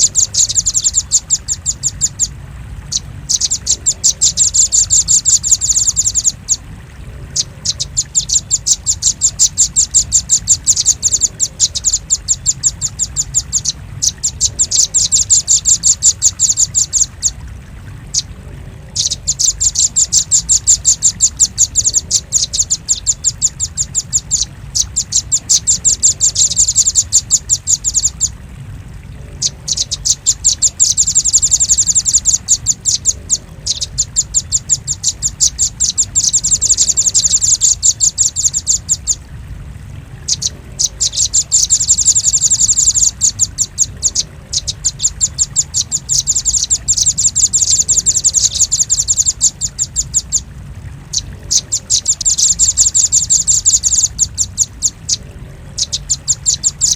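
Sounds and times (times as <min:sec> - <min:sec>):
bird calling sharp high chips: 0:40.3 - 0:50.4.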